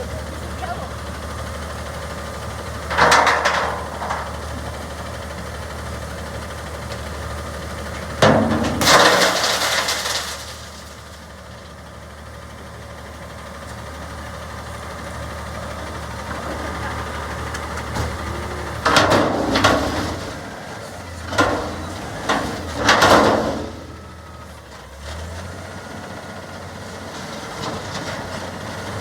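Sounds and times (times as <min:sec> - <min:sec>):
garbage truck engine running: 0:00.0 - 0:29.0.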